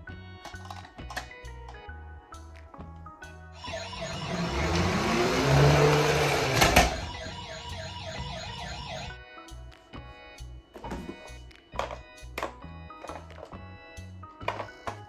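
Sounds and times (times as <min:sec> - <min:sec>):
background music: 0:00.0 - 0:15.0
toy siren warbling: 0:03.6 - 0:09.2.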